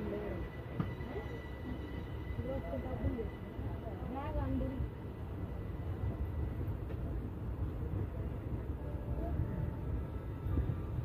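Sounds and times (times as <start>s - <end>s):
train rumbling: 0.0s - 11.0s
wind buffeting microphone: 4.3s - 11.0s.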